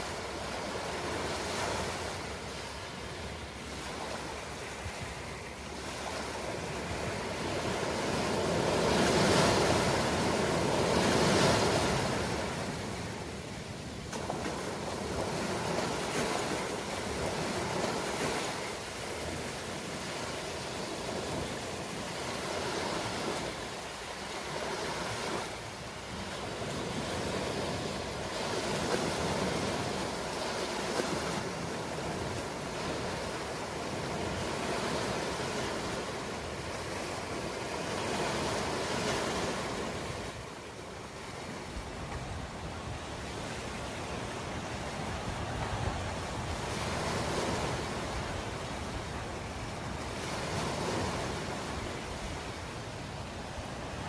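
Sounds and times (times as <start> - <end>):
ocean waves on shore: 0.0 - 54.0.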